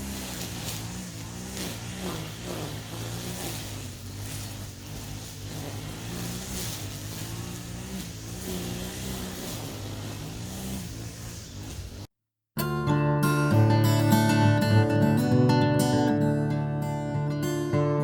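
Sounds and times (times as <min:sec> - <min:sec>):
small petrol engine running: 0:00.0 - 0:12.1.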